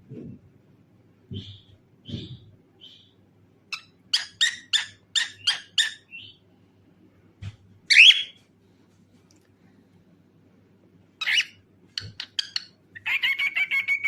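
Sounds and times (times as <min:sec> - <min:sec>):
cockatiel chirping: 0:03.7 - 0:06.4, 0:07.9 - 0:08.4, 0:11.2 - 0:14.0.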